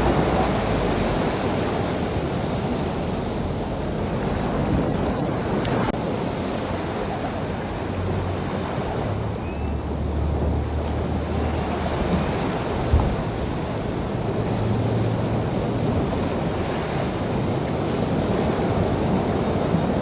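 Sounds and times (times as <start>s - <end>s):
ocean surf washing in: 0.0s - 20.0s
wind rumble on microphone: 0.0s - 20.0s.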